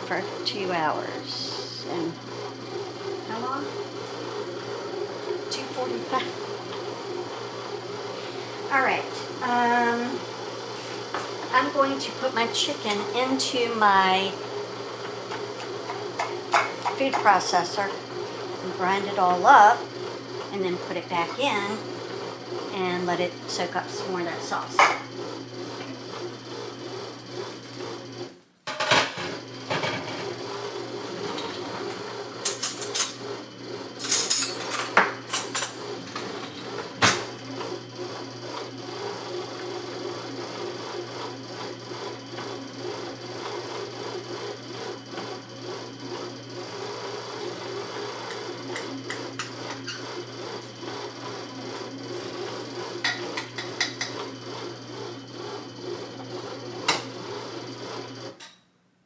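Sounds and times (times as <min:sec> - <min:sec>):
kitchen appliance motor hum: 0:00.0 - 0:58.6
utensils and dishes clinking: 0:32.4 - 0:33.2, 0:34.0 - 0:37.3.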